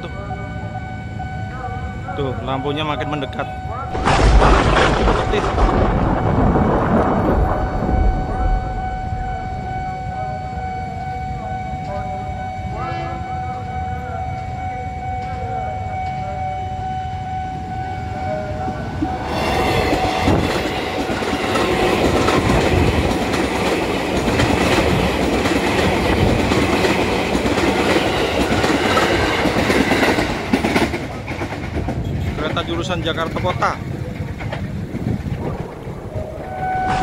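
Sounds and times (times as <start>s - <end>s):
train cars rushing past: 3.2s - 11.3s, 17.3s - 37.0s
train wheels clattering on rails: 19.2s - 35.4s.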